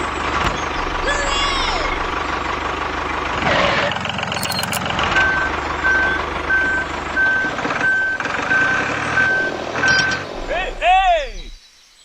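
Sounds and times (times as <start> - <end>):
low motor running: 0.0 - 11.6
brief rattle: 4.3 - 4.9
reversing beeper: 4.3 - 11.6.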